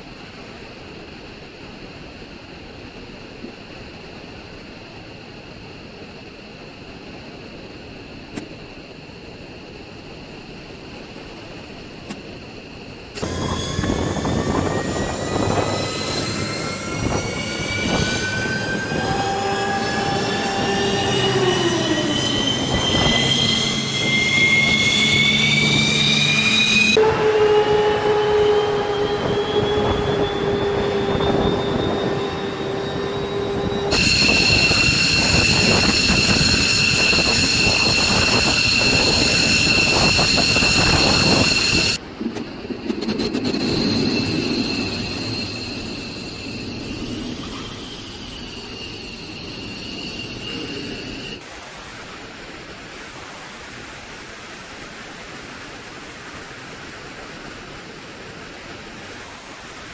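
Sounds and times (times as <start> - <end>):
jet engine turbine whine: 0.0 - 59.9
rushing roar: 13.2 - 42.0.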